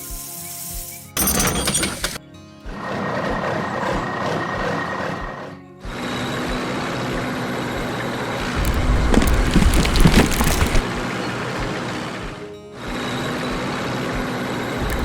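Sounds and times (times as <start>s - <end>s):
deep rumbling and crackling: 8.4s - 11.0s.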